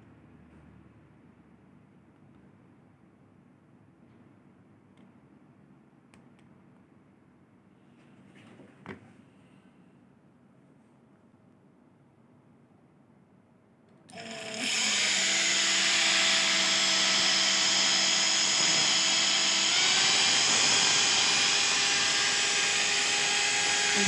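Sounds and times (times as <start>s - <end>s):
impact driver motor whine: 14.1s - 24.0s.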